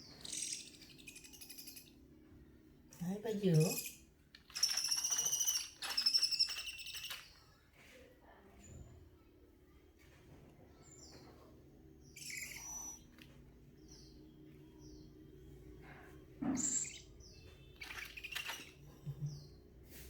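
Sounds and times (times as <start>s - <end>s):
baby owl chirping: 0.0s - 2.0s, 3.5s - 7.5s, 12.0s - 14.2s, 16.5s - 19.4s
owl hissing calls: 3.7s - 7.3s, 12.2s - 13.2s, 16.6s - 17.1s, 17.8s - 18.8s.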